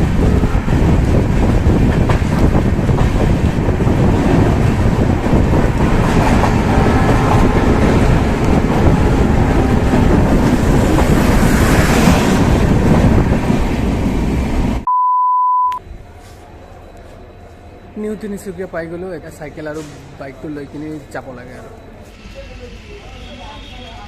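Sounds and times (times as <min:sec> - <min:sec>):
train wheels rumbling on rails: 0:00.0 - 0:14.9
short steady beep: 0:14.9 - 0:15.8.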